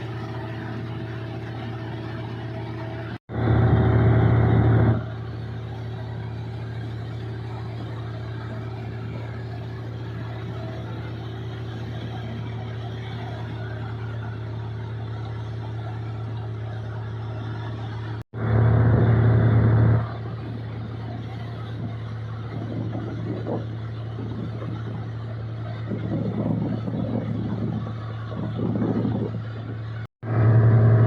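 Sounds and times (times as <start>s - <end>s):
combine harvester diesel engine: 0.0s - 31.0s.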